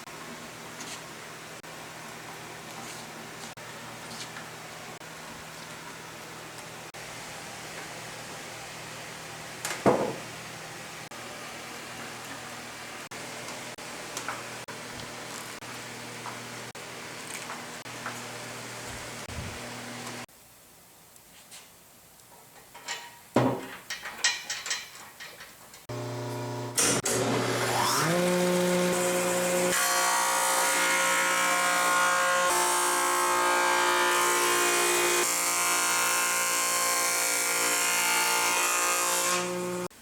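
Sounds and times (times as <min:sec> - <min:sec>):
wood planer motor whining: 0:25.9 - 0:39.9.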